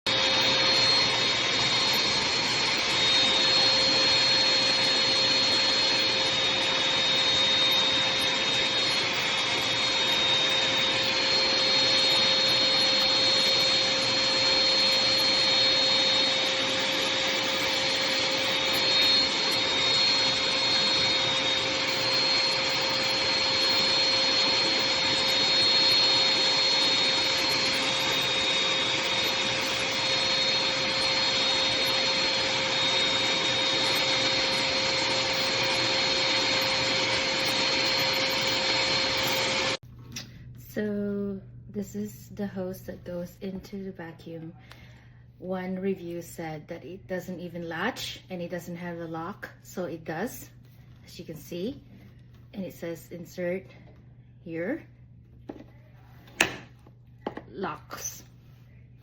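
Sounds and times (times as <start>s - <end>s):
shop vacuum running: 0.0s - 41.3s, 55.5s - 59.0s.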